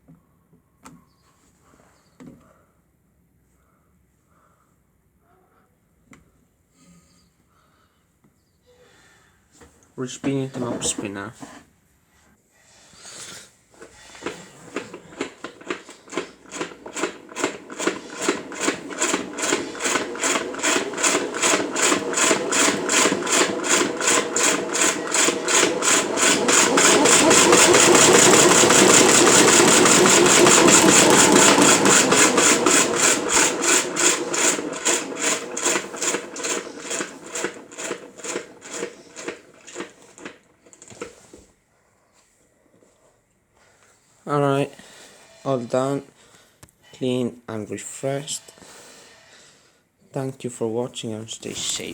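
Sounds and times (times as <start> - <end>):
mop spinner ticking: 14.2 - 40.4.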